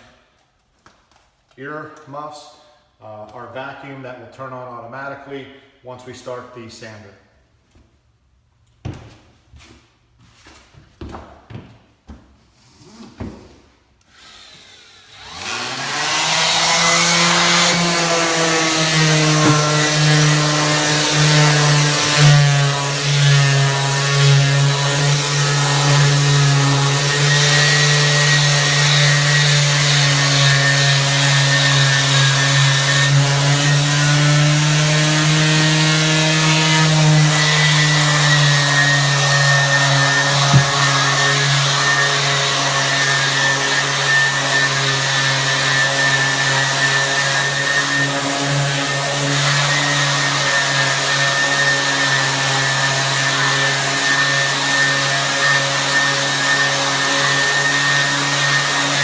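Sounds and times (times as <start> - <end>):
palm sander on wooden floor: 9.6 - 59.0
dust extraction vacuum: 14.1 - 59.0
sharp knock: 40.5 - 41.1.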